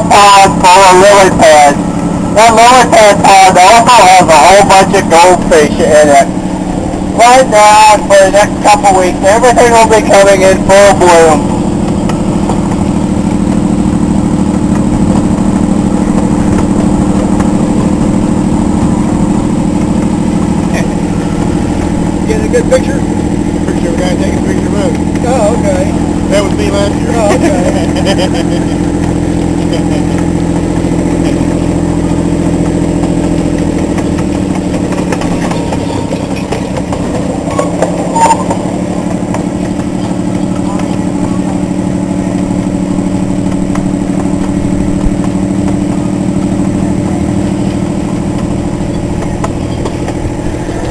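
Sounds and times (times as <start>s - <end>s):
miniature train engine running: 19.0s - 50.9s.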